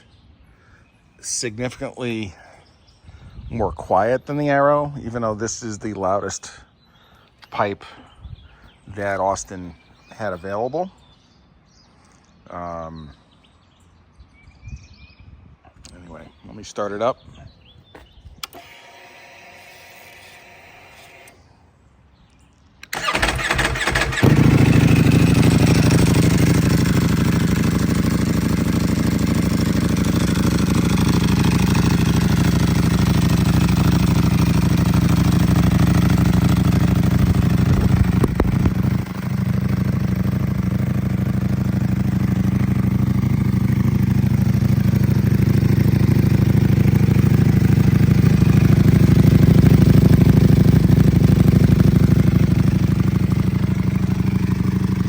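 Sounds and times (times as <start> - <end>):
starter cranking: 22.8 - 26.5, 36.0 - 39.1
motorcycle engine idling: 22.9 - 55.0
clutch rattle: 37.0 - 39.1.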